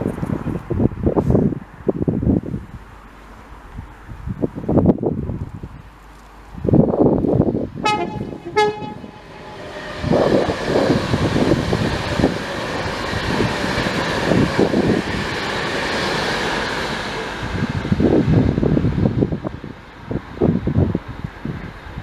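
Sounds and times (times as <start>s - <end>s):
passing train rumble: 0.0s - 22.0s
wind buffeting microphone: 0.0s - 22.0s
train horn toots: 7.8s - 11.0s.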